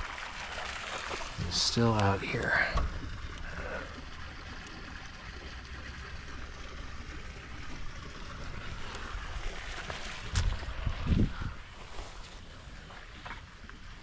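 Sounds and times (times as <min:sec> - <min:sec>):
wind rumble on microphone: 0:08.5 - 0:12.0.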